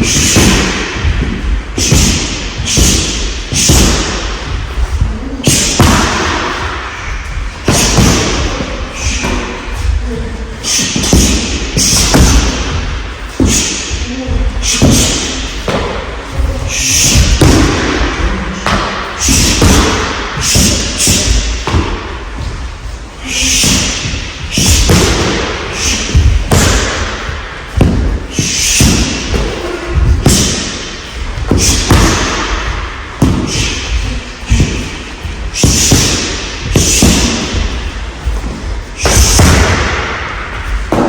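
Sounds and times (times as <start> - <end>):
punches and kicks thudding on mat: 27.8 - 30.8, 38.4 - 40.3.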